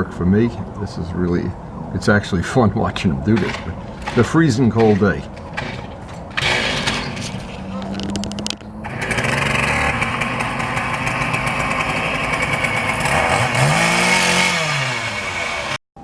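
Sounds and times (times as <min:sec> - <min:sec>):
small engine running: 0:05.6 - 0:15.8.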